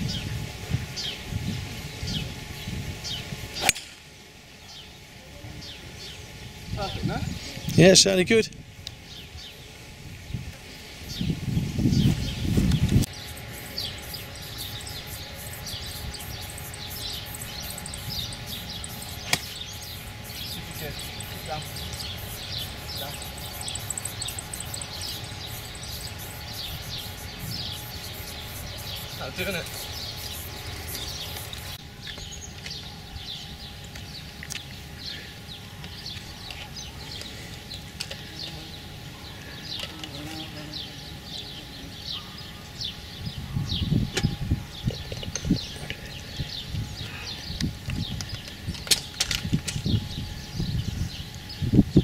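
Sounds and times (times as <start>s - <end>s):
small birds chirping: 8.9s - 52.0s
steady low rumble: 9.9s - 32.0s
sharp click: 19.2s - 19.6s.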